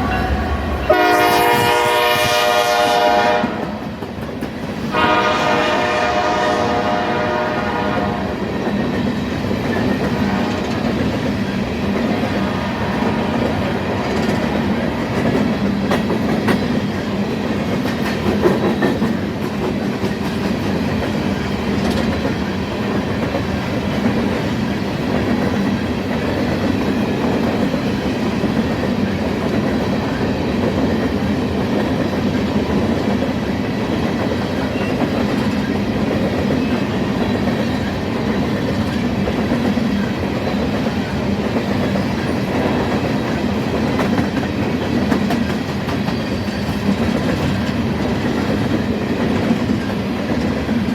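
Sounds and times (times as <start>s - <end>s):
locomotive horn: 0.0s - 3.8s, 4.9s - 8.4s
freight train rumbling and clattering: 0.0s - 50.9s.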